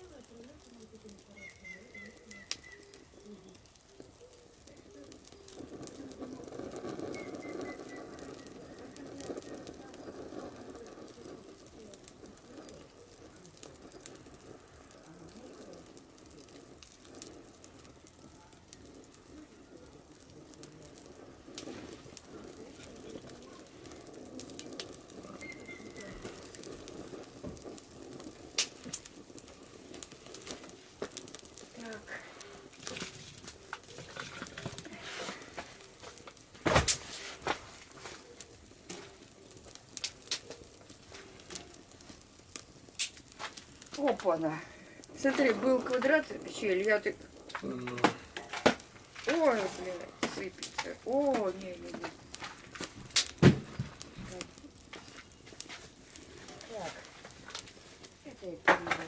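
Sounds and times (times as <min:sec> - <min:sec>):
firewood crackling and popping: 0:00.0 - 0:59.0
low hiss of fire: 0:00.0 - 0:59.0
dove cooing: 0:01.4 - 0:04.8.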